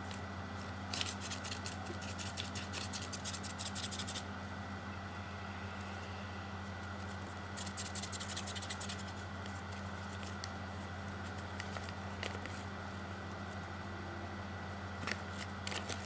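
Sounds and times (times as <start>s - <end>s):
paper rustling and crackling: 0.0s - 4.2s, 11.2s - 12.7s, 15.0s - 16.0s
electrical hum: 0.0s - 16.0s.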